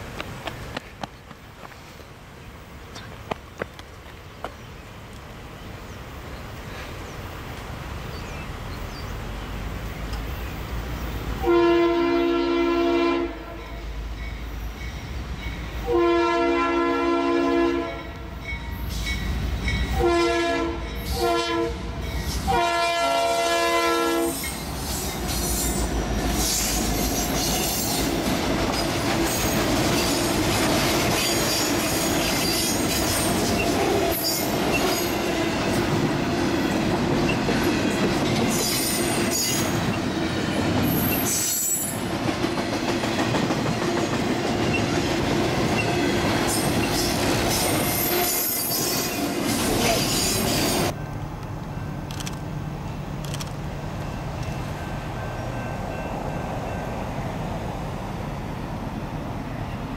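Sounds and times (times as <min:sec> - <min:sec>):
locomotive air horn: 0:11.4 - 0:13.8, 0:15.8 - 0:18.1, 0:19.9 - 0:24.5
train wheels clacking and squealing: 0:13.6 - 0:15.8, 0:18.1 - 0:20.0, 0:20.8 - 0:21.3, 0:22.0 - 0:22.5, 0:24.2 - 0:51.1.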